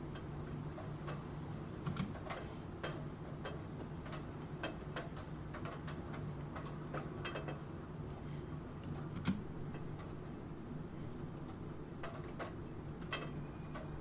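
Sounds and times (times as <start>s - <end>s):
rain: 0.1s - 14.0s.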